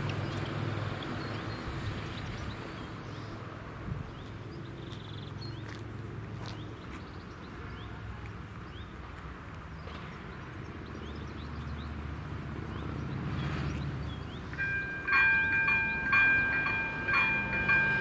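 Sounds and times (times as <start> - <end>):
birds chirping: 12.6 - 18.0.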